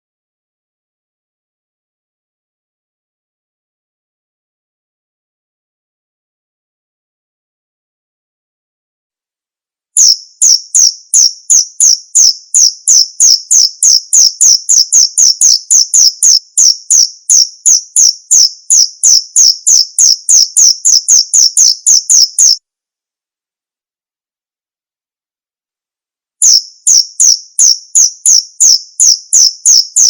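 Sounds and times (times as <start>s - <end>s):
cricket chirping: 10.0s - 22.6s, 26.4s - 30.0s.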